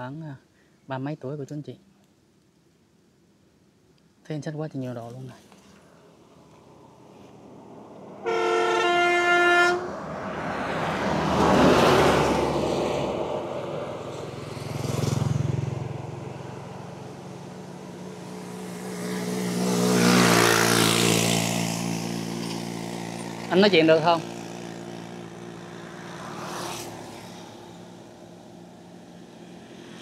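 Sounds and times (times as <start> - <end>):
road traffic passing: 4.9 - 30.0
vehicle horn: 8.2 - 10.0.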